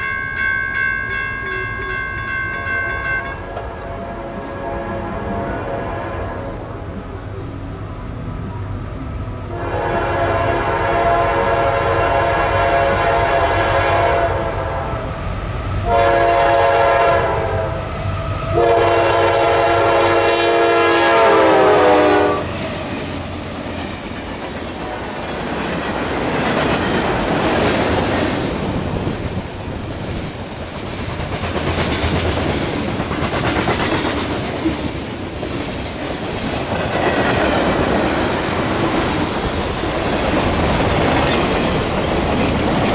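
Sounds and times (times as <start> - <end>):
locomotive air horn blasts: 2.6 - 7.0, 9.5 - 15.1, 15.8 - 22.5.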